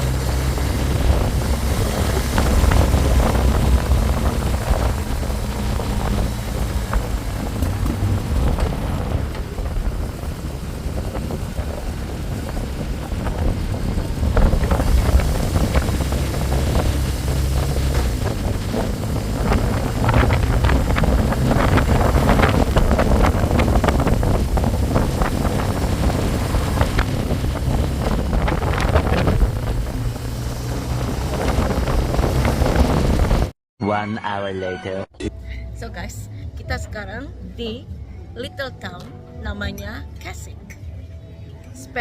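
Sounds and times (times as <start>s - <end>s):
motorbike engine running: 0.0s - 33.5s
wind buffeting microphone: 0.0s - 33.6s.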